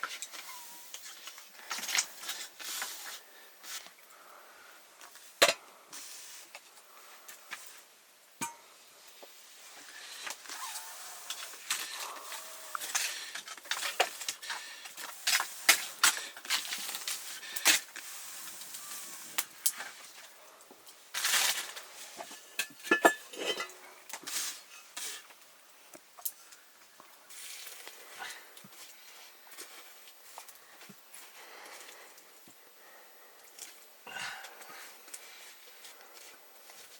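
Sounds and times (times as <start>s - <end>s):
metal pots and utensils clinking: 8.4s - 8.7s, 22.2s - 23.8s.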